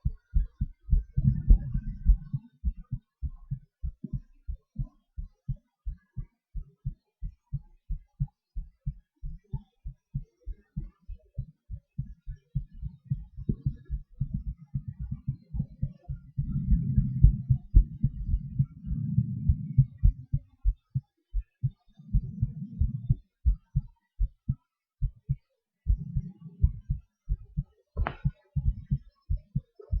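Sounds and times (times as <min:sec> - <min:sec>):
heartbeat thuds: 0:00.0 - 0:30.0
breath sounds: 0:13.1 - 0:20.7, 0:21.6 - 0:23.6, 0:25.9 - 0:27.4.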